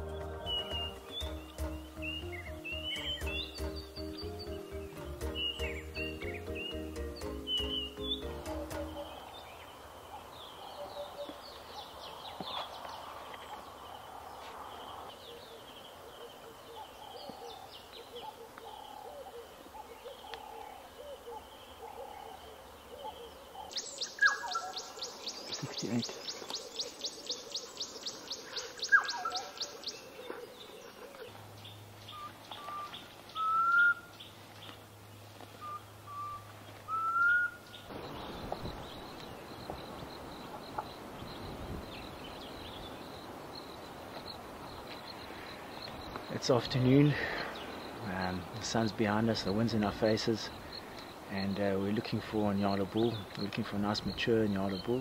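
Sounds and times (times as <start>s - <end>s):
wild birds calling: 0.0s - 55.0s.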